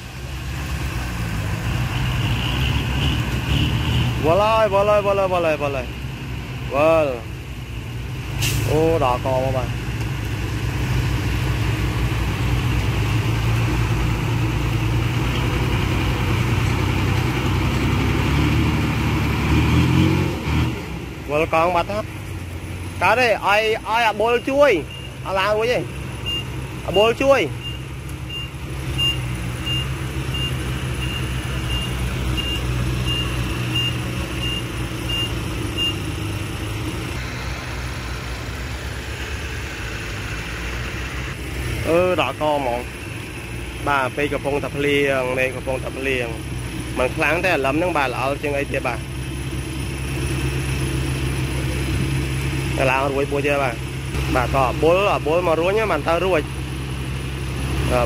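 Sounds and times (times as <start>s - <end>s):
heavy diesel engine running: 0.0s - 58.0s
reversing alarm beeping: 24.3s - 25.3s, 26.2s - 26.5s, 27.6s - 36.1s.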